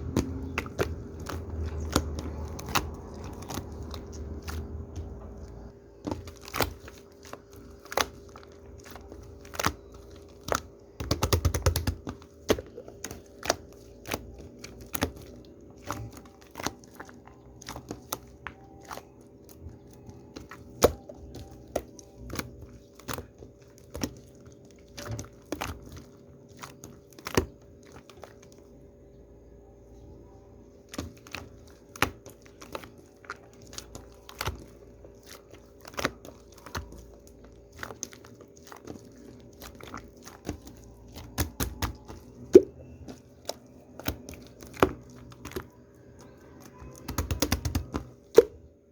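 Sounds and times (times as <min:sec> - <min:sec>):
shaving foam crackling and popping: 0:00.0 - 0:29.2, 0:30.6 - 0:48.9
faint steady hum: 0:00.0 - 0:48.9.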